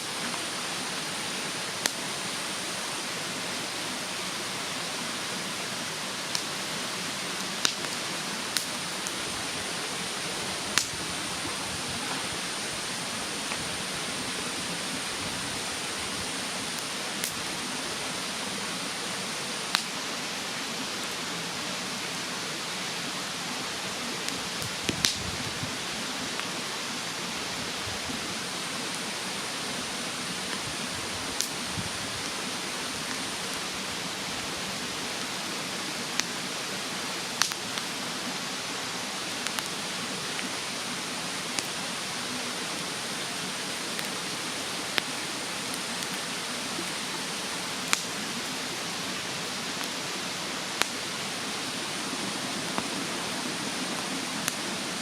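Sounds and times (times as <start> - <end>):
mountain stream rushing: 0.0 - 55.0
wood fire crackling: 0.1 - 21.3, 23.7 - 38.4, 39.0 - 55.0
sharp fire pops: 7.6 - 9.2, 10.7 - 11.0, 24.6 - 25.4, 31.4 - 31.6, 37.4 - 37.9, 47.8 - 48.2, 50.8 - 51.0.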